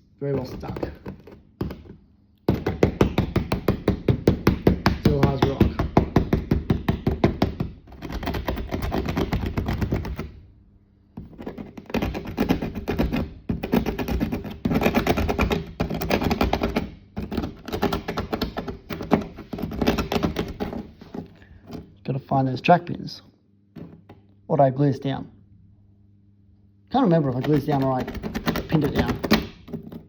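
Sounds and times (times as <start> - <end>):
tool tapping and scraping ballast: 0.3 - 10.3, 11.2 - 21.9, 27.2 - 30.0.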